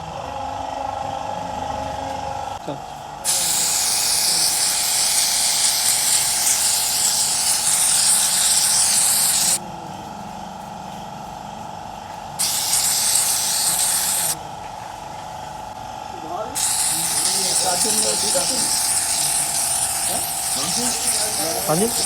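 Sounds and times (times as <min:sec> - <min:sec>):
spray hissing: 0:03.3 - 0:09.6, 0:12.4 - 0:14.4, 0:16.6 - 0:22.0.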